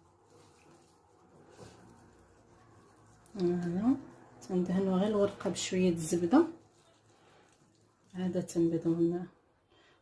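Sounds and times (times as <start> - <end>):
faint soft handling sound: 0.0 - 3.8.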